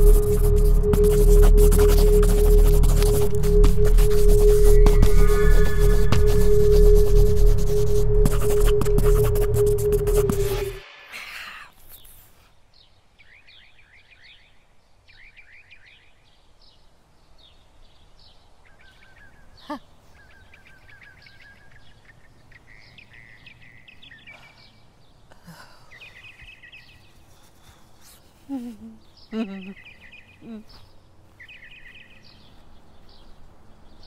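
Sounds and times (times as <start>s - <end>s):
outdoor background noise: 0.0s - 34.0s
small birds chirping: 11.7s - 34.0s.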